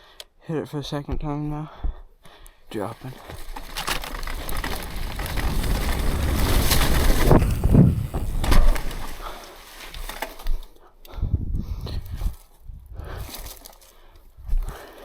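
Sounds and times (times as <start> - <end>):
mountain bike rolling on dirt: 2.8 - 10.7
bike landing thuds: 3.0 - 10.6
wind rushing over microphone: 4.1 - 9.1.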